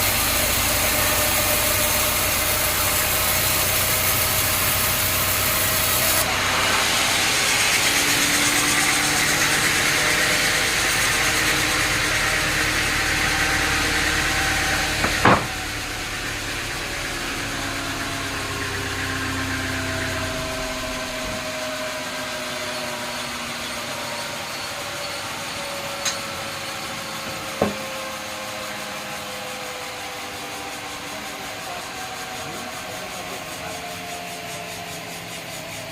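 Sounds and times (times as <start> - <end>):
sawmill machinery winding down: 0.0 - 35.9
sharp knock: 15.0 - 15.6.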